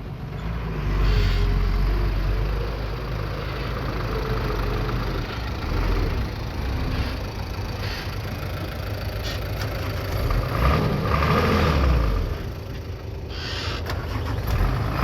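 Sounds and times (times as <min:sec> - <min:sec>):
bulldozer diesel engine: 0:00.0 - 0:15.0.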